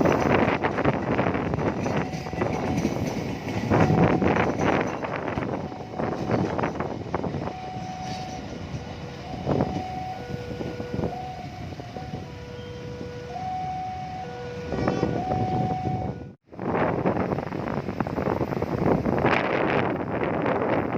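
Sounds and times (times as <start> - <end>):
railway rumbling: 0.0 - 20.9
level crossing two-tone alarm: 1.8 - 16.3.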